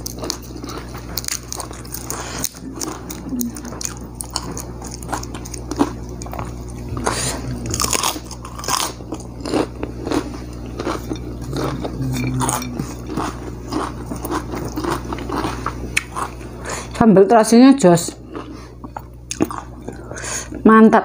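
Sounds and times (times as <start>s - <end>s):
crunchy chewing and biting: 0.0s - 17.0s, 18.1s - 20.2s
low hum: 0.0s - 20.6s.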